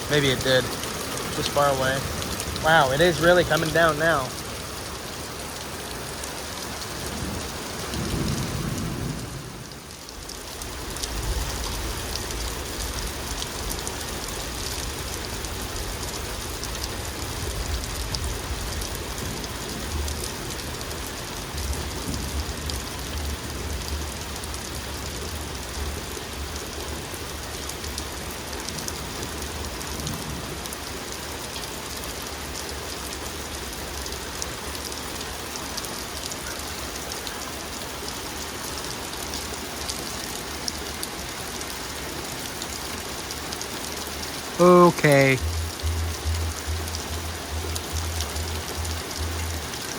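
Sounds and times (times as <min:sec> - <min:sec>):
heavy rain pouring: 0:00.0 - 0:49.9
low rumble of thunder: 0:07.1 - 0:09.8.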